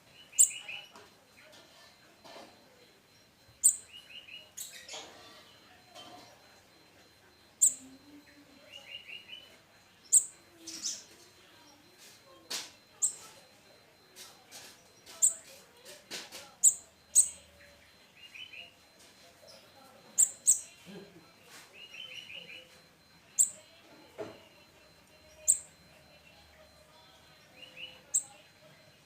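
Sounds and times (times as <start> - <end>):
bird sharp high chirps: 0.2 - 0.9.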